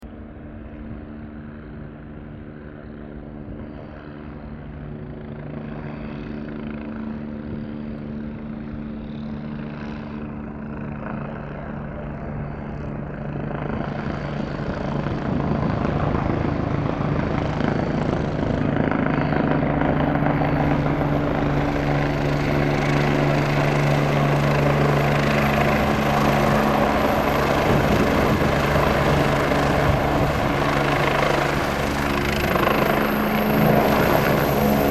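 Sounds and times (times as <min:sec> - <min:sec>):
helicopter rotor beat: 0:00.1 - 0:34.9
high turbine whine: 0:13.2 - 0:34.9.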